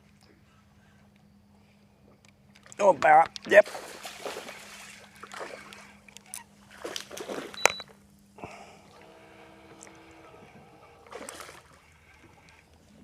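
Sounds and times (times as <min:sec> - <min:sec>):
water sloshing: 0:03.5 - 0:08.0, 0:08.6 - 0:13.0
fish splashing at surface: 0:03.6 - 0:05.9, 0:06.7 - 0:07.6, 0:08.9 - 0:12.7.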